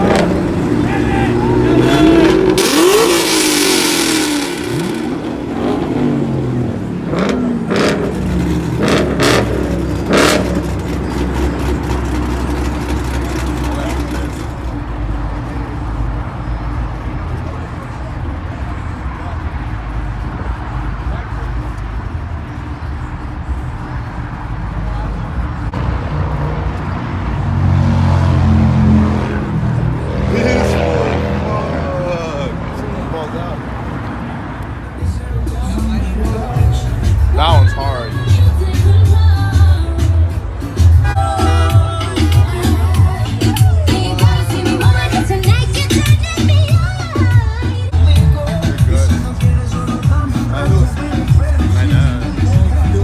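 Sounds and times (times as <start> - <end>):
car engine running: 0.0 - 16.4
car engines revving: 0.0 - 53.0
crowd noise: 0.0 - 53.0.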